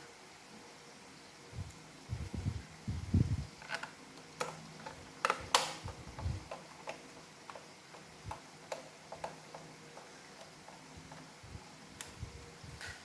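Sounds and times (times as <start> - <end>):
plastic parts clicking: 3.6 - 11.3.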